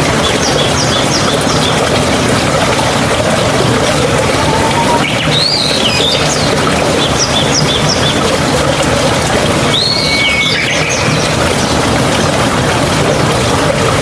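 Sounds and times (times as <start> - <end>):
stream water flowing: 0.0 - 14.0
birds chirping: 3.7 - 8.2
bird whistle call: 4.3 - 6.2.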